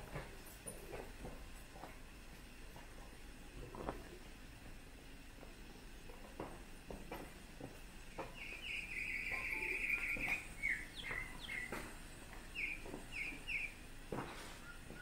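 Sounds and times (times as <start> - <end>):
songbird singing: 8.2 - 15.0.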